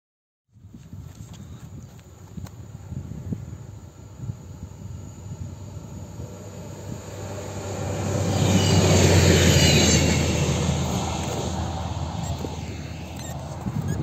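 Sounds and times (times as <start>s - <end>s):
low hum: 2.5s - 14.0s
train wheels rushing on rail: 6.2s - 13.4s.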